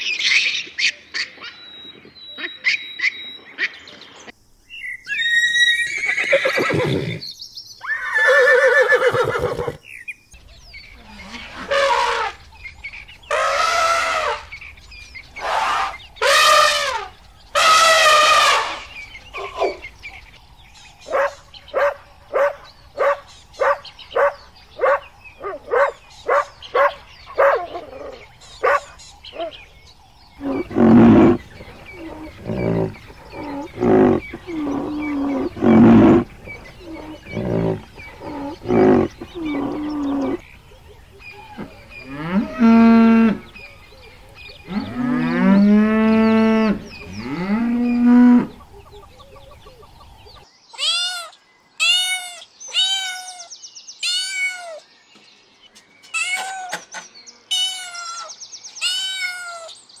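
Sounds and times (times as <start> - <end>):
cattle mooing: 30.4 - 40.4, 41.6 - 43.6, 44.7 - 48.6.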